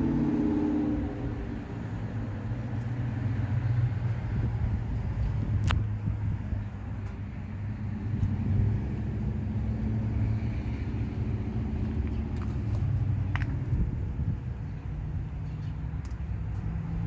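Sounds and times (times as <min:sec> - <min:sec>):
motor vehicle running: 0:00.0 - 0:17.0.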